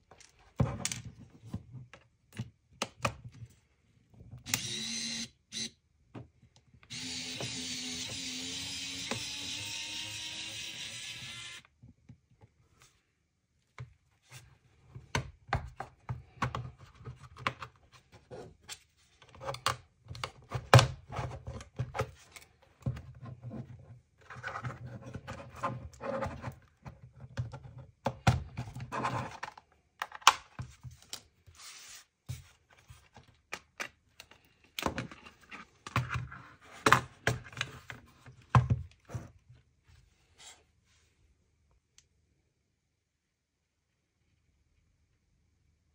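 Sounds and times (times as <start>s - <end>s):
tools clicking and scraping plastic: 16.2s - 31.3s.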